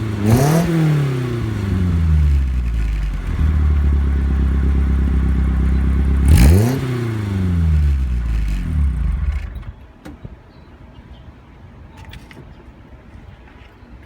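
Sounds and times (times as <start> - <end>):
car engine idling and revving: 0.0 - 9.8.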